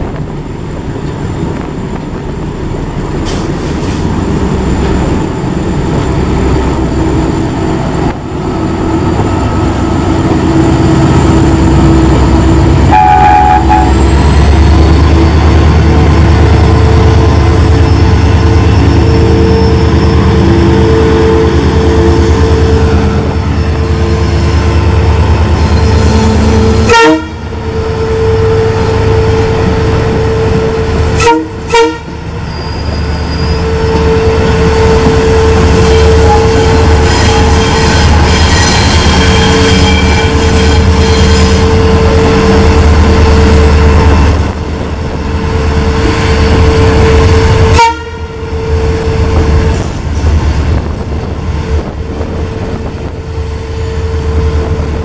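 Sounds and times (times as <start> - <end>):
locomotive engine drone: 0.0 - 55.0
rail noise: 0.0 - 55.0
train horn: 12.8 - 14.2, 25.6 - 29.5, 30.2 - 32.2, 33.0 - 42.0, 46.4 - 49.4.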